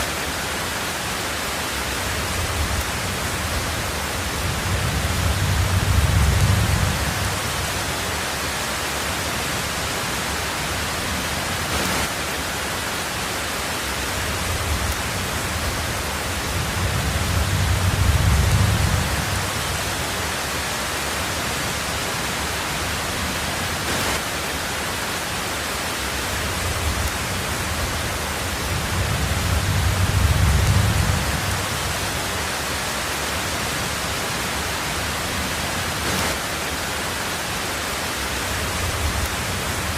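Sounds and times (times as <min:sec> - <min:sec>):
heavy rain on a tin roof: 0:00.0 - 0:39.9
distant thunder rumble: 0:02.0 - 0:08.1, 0:14.3 - 0:20.2, 0:26.4 - 0:32.4.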